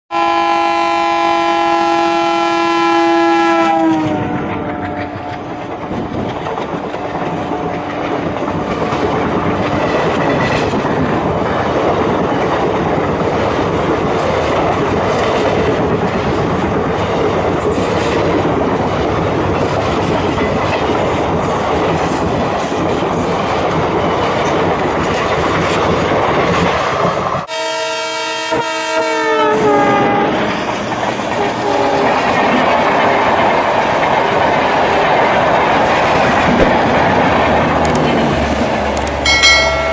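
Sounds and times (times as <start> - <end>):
train horn blowing: 0.1 - 5.9, 27.5 - 30.6, 31.3 - 32.3
train rumble and clatter: 2.8 - 27.6, 28.2 - 39.9.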